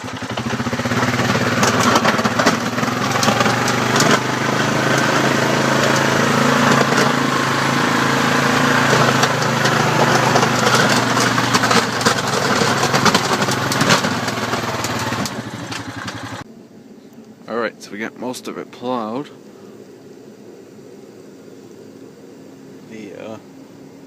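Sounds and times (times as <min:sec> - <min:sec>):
atv engine running: 0:00.0 - 0:16.5.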